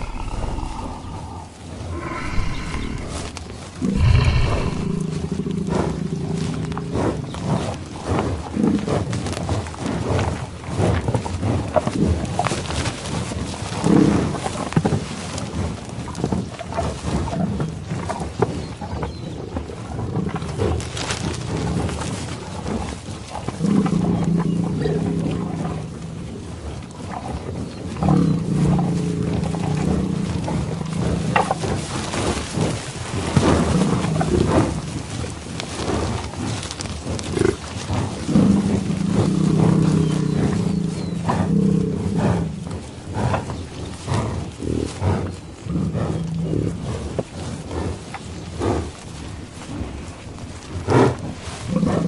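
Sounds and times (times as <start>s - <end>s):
large animal growling: 0.0s - 7.6s, 23.6s - 26.3s, 28.0s - 43.5s.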